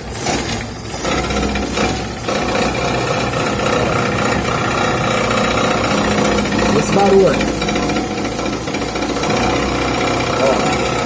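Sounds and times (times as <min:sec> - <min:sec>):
car engine running: 0:02.2 - 0:11.0.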